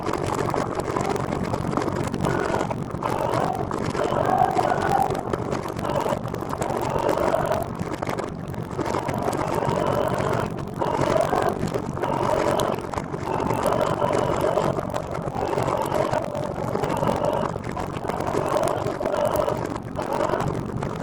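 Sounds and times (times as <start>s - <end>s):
wavering mid-pitched drone: 9.0s - 20.5s.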